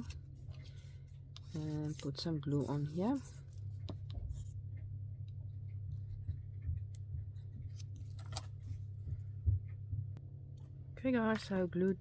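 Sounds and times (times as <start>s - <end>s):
low steady hum: 0.0s - 12.0s
paper rustling and tapping: 6.2s - 9.3s.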